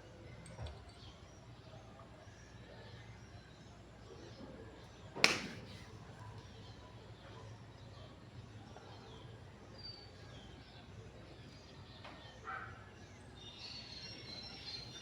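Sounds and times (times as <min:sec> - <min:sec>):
sharp knock: 0:05.3 - 0:05.7
faint bird chirps: 0:13.2 - 0:15.0.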